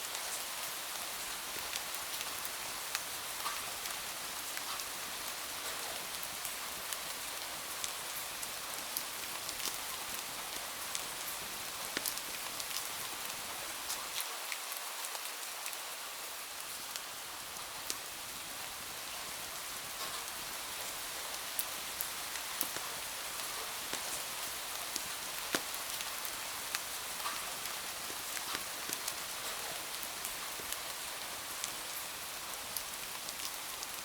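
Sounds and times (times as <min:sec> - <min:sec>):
sharp ticks of raindrops: 0:00.0 - 0:34.0
steady rain falling: 0:00.0 - 0:34.0.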